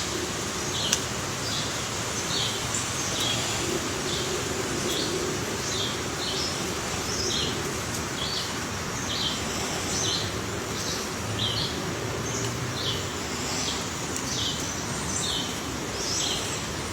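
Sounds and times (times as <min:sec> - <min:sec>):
steady background hiss: 0:00.0 - 0:16.9.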